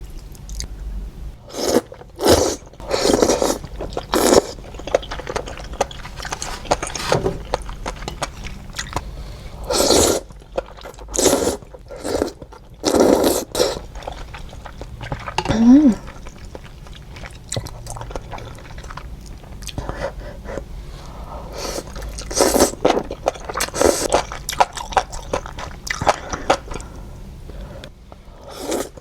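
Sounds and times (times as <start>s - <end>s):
noisy slurping of noodles: 1.5s - 4.6s, 9.6s - 10.3s, 11.2s - 14.5s.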